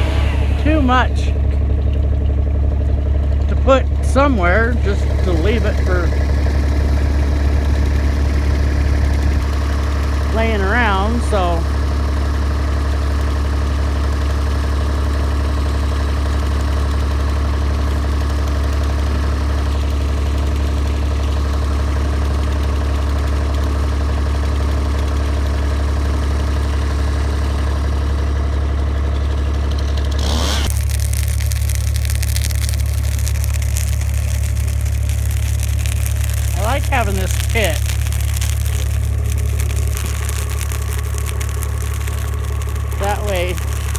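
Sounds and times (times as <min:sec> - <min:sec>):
hiss: 0:00.0 - 0:00.9, 0:30.2 - 0:43.9
vehicle engine running: 0:00.0 - 0:43.9.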